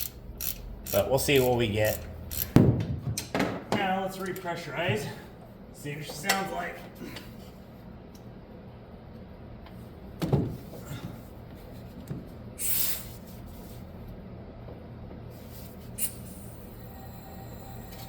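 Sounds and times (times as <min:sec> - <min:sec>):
steady low hum: 0:00.0 - 0:18.0
air hissing: 0:12.6 - 0:13.2, 0:15.9 - 0:18.0.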